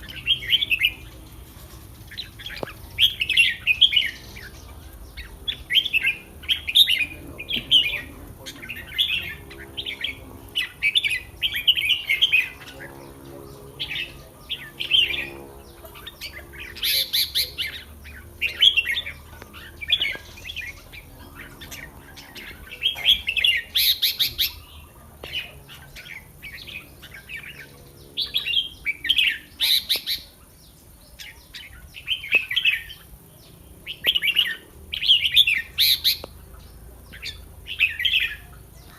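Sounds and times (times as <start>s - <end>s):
birds chattering song: 0.0s - 38.9s.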